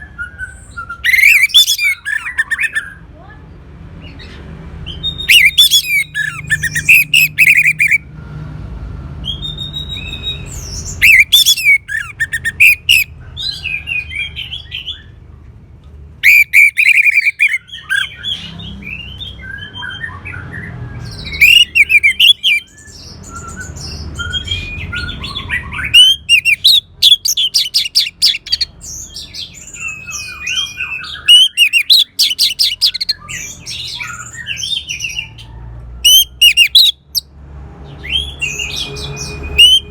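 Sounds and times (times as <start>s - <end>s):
thrush singing: 5.1s - 8.0s, 10.8s - 13.1s, 16.2s - 18.6s, 21.1s - 35.4s, 38.2s - 39.9s.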